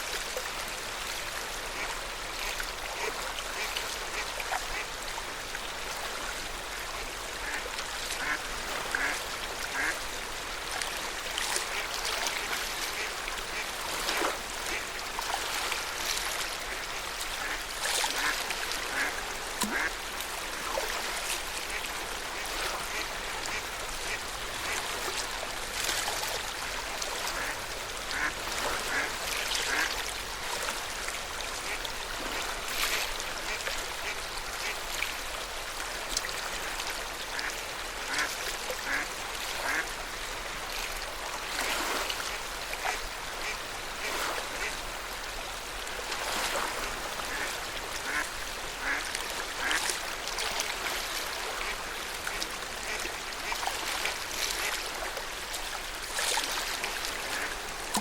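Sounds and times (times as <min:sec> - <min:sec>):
water lapping at shore: 0:00.0 - 0:58.0
ducks quacking: 0:08.2 - 0:09.9, 0:17.4 - 0:19.9, 0:27.3 - 0:29.1, 0:29.7 - 0:29.9, 0:37.3 - 0:39.0, 0:39.6 - 0:39.8, 0:47.3 - 0:48.2, 0:48.8 - 0:49.0, 0:57.2 - 0:58.0.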